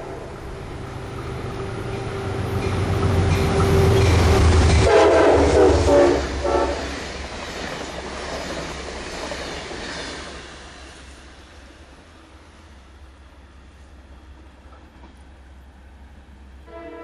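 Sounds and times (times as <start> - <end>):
train cars rushing on rails: 0.0 - 17.0
train horn: 1.6 - 7.1, 16.6 - 17.0.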